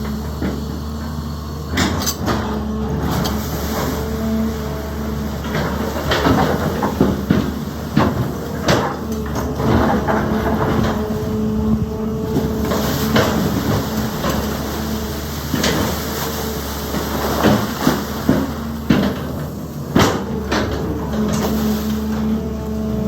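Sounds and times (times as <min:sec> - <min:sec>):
excavator engine running: 0:00.0 - 0:23.0
bucket and stones clanking: 0:05.3 - 0:23.0.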